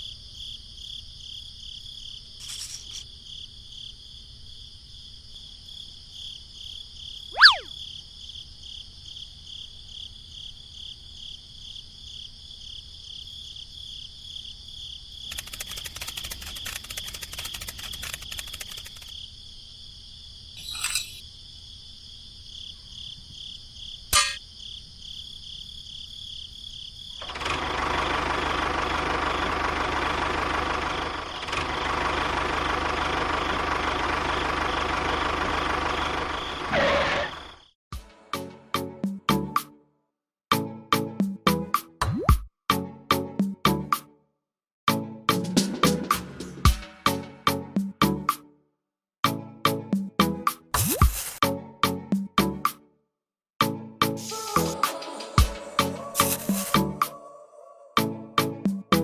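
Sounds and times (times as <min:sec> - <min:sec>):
crickets chirping: 0:00.0 - 0:27.2, 0:35.9 - 0:36.7, 0:37.3 - 0:37.8
sharp clicks: 0:15.3 - 0:19.1
engine running: 0:27.2 - 0:37.4.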